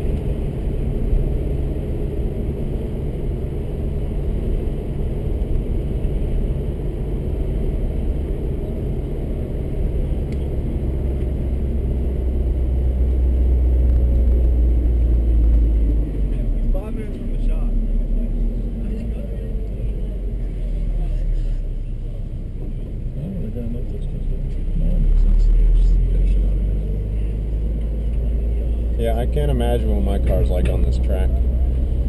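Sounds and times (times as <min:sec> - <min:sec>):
car engine running: 0:00.0 - 0:32.0
road and tyre noise: 0:00.0 - 0:32.0.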